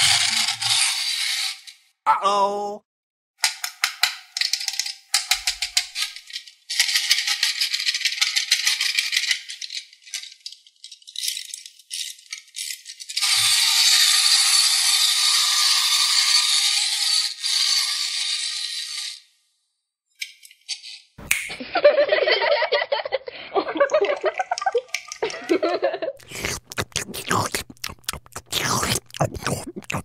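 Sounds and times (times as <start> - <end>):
plastic toy clicking and rattling: 3.4 - 13.4.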